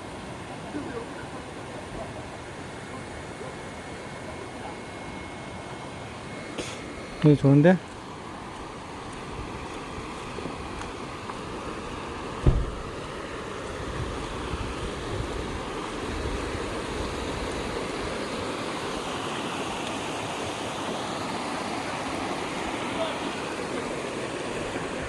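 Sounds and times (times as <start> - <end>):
low rumbles: 12.4 - 13.0
low thump: 12.4 - 13.0
stream rushing over rocks: 15.2 - 25.0.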